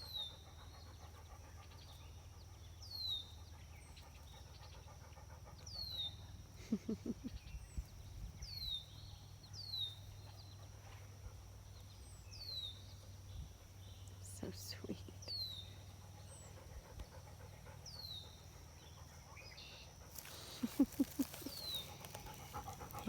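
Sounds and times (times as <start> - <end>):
dog panting: 3.8 - 6.3, 15.8 - 23.0.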